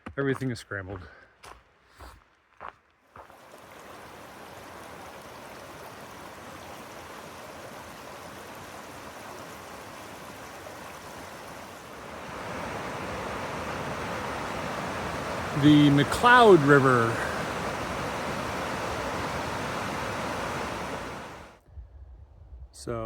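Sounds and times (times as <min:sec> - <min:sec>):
rushing river water: 0:03.2 - 0:21.6.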